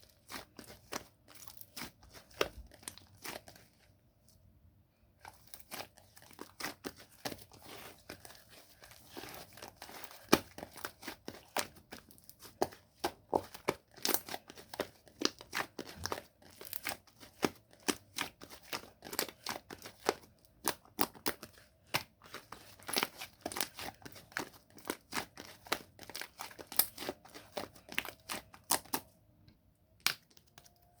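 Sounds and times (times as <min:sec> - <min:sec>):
slime squishing with bubble pops: 0:05.4 - 0:29.1.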